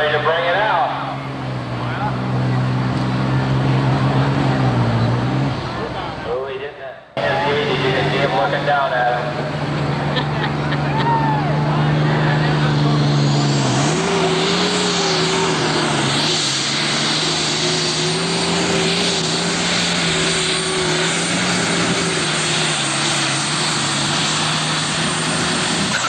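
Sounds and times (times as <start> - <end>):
diesel engine running hard: 0.0 - 26.0
dense rushing noise: 7.2 - 26.0.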